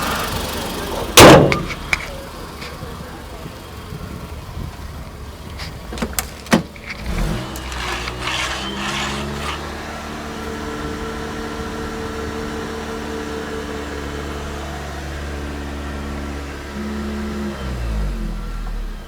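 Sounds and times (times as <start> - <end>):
car engine starting and idling: 0.0 - 19.0.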